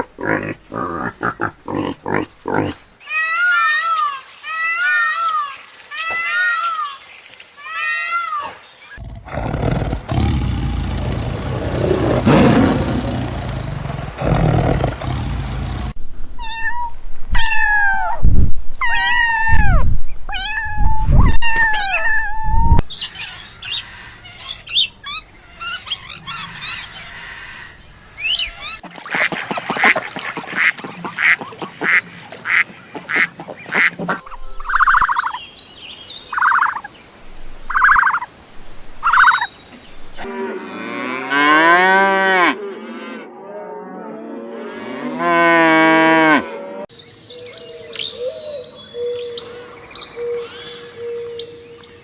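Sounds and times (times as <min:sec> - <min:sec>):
ducks quacking: 0:28.8 - 0:35.4
cow mooing: 0:40.2 - 0:46.8.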